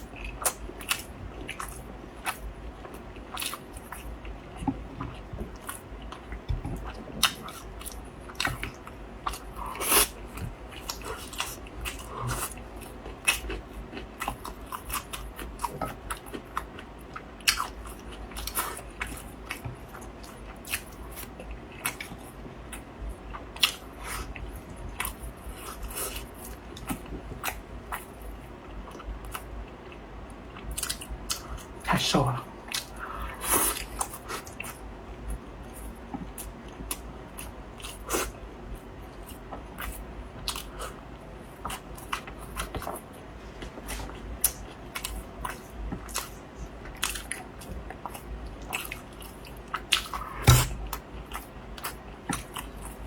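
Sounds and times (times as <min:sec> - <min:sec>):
person chewing wetly: 0:00.0 - 0:30.0, 0:30.6 - 0:31.8, 0:35.6 - 0:53.0.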